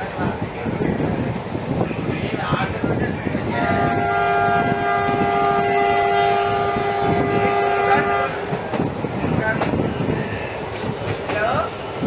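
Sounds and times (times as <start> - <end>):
moving train rumble: 0.0 - 12.0
locomotive horn: 3.5 - 8.4.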